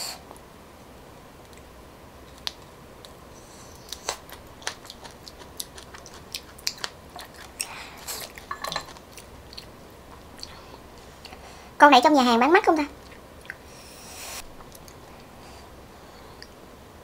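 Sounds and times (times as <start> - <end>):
person chewing with mouth clicks: 2.3 - 11.4, 13.0 - 13.7.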